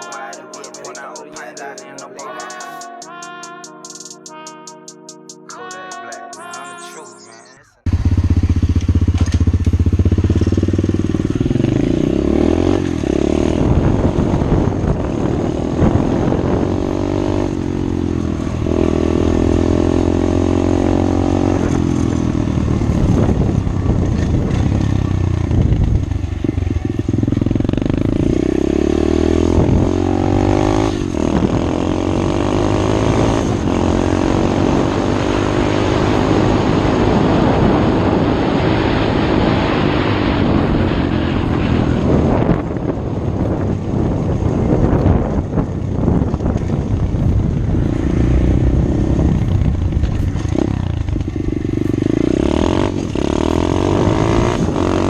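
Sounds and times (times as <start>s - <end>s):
motorcycle engine accelerating: 7.8s - 55.0s
wind rushing: 10.1s - 51.0s.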